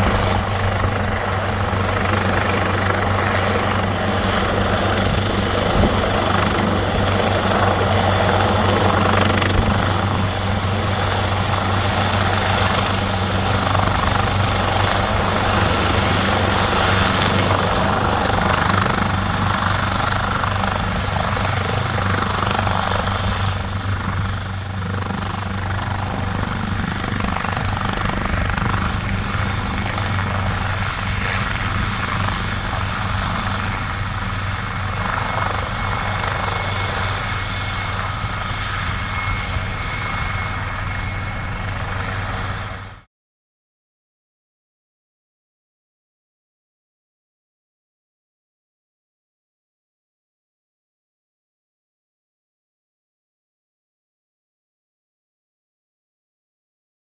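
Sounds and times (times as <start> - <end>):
helicopter rotor and turbine whine: 0.0 - 43.1.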